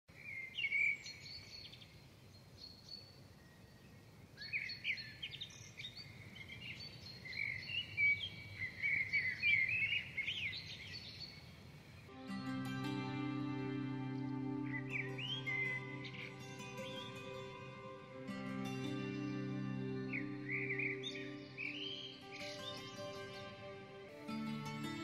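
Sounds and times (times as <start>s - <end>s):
songbirds chirping and warbling: 0.1s - 25.0s
music: 12.1s - 25.0s.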